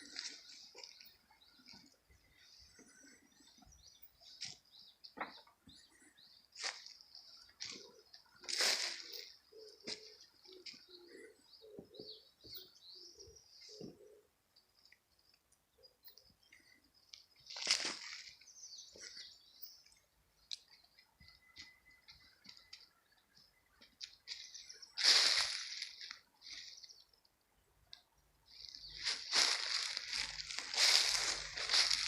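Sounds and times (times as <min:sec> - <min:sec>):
crunching in dry leaf litter: 0:06.6 - 0:07.0, 0:07.6 - 0:10.1, 0:17.4 - 0:19.2, 0:24.3 - 0:26.9, 0:28.5 - 0:32.0.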